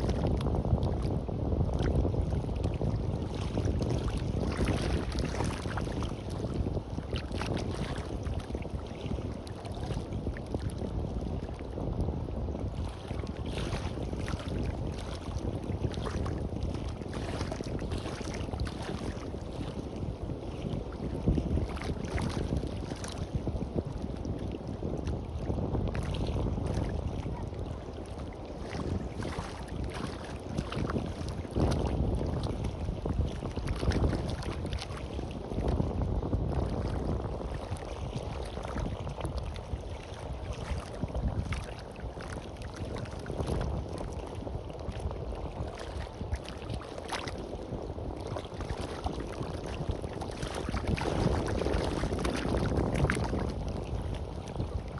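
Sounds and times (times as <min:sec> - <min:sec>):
sea waves on a beach: 0:00.0 - 0:54.9
wind buffeting microphone: 0:00.0 - 0:54.9.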